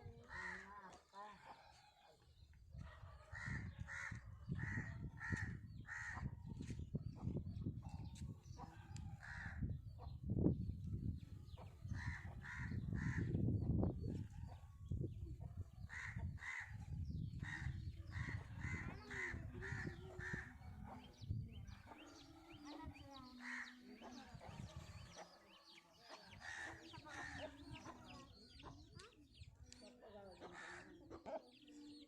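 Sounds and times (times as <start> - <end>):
crows cawing: 0.3 - 0.7, 3.4 - 6.2, 9.2 - 9.6, 15.9 - 16.7, 30.5 - 31.0
small birds chirping: 3.4 - 32.0.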